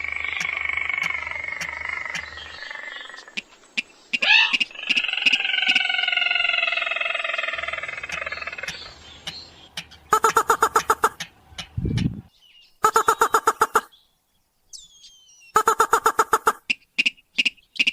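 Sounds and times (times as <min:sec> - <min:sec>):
long nasal falling bird call: 0:00.0 - 0:09.1, 0:10.1 - 0:11.2, 0:12.8 - 0:14.0, 0:14.9 - 0:17.9
fast pulsed bird notes: 0:10.1 - 0:13.9, 0:15.5 - 0:16.8.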